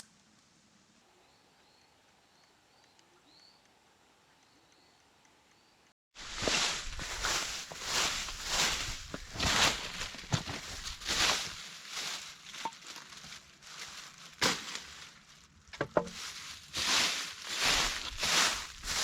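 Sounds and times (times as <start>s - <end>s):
rustling and crunching: 6.2s - 19.0s.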